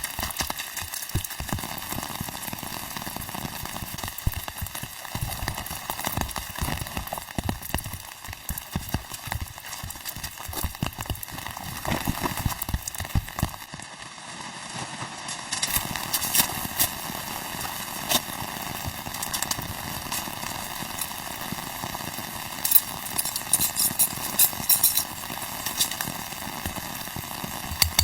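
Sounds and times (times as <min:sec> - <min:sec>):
steady hiss: 0:00.0 - 0:28.0
irregular knocking and tapping: 0:27.7 - 0:28.0.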